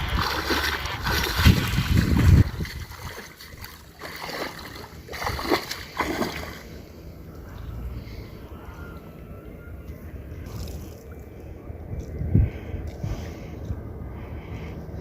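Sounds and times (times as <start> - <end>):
water splashing: 0.0 - 6.8.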